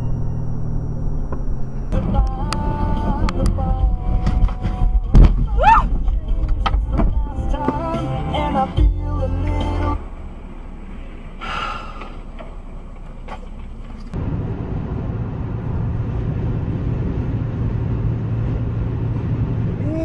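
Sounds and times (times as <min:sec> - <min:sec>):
car driving rumble: 0:00.0 - 0:20.0
music: 0:02.0 - 0:10.0
breath-like sound: 0:11.4 - 0:12.2.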